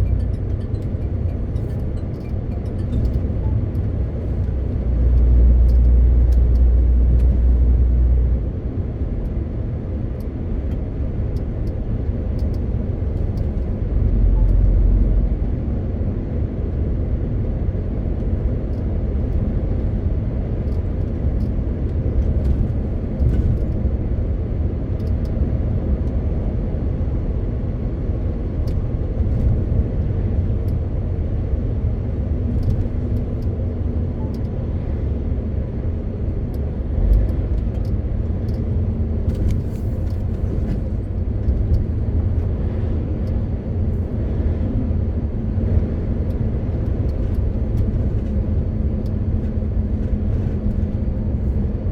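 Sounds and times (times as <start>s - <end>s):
diesel truck engine rumble: 0.0s - 51.9s
road noise: 0.0s - 51.9s.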